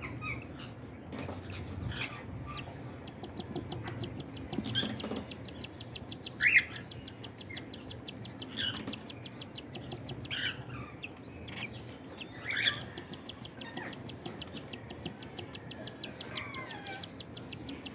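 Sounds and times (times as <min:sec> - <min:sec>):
chicks chirping: 0:01.8 - 0:17.9.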